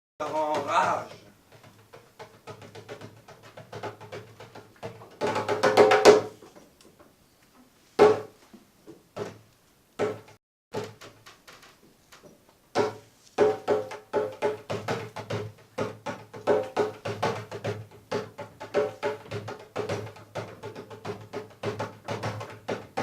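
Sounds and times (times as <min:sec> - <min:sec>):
person reciting poetry: 0:00.2 - 0:01.3
hand drum strokes: 0:00.2 - 0:06.6, 0:12.2 - 0:23.0.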